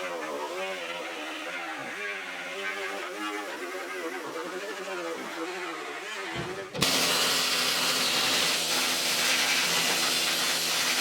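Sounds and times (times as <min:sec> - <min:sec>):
power tool hissing: 0:06.3 - 0:11.0.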